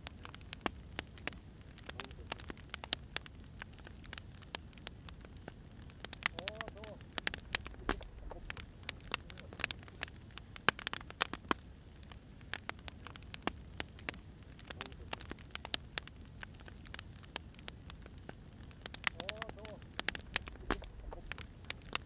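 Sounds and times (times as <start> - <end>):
firewood crackling and popping: 0.0 - 22.0
low steady rumble: 1.4 - 10.8, 14.9 - 22.0.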